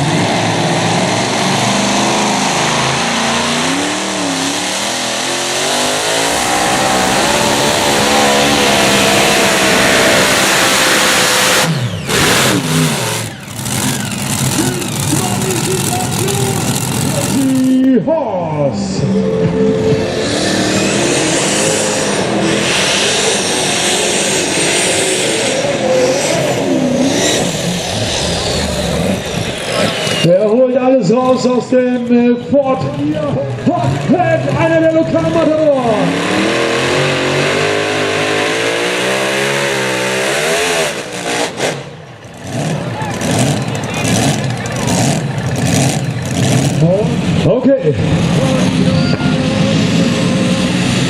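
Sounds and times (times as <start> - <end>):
high whine: 0.0 - 18.0
tractor engine running hard: 0.0 - 51.0.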